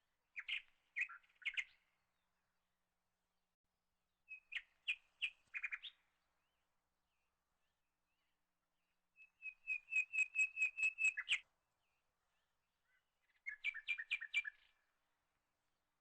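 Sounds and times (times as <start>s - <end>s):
bird singing repeated notes: 9.2s - 11.4s, 13.4s - 14.7s.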